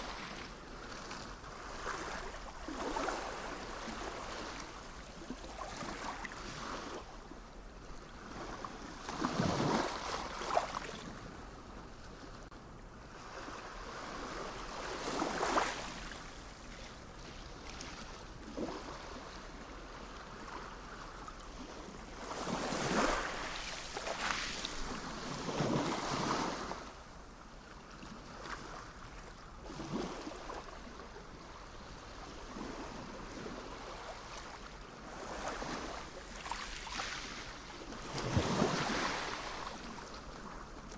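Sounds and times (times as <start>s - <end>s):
sea waves washing in: 32.2s - 40.9s.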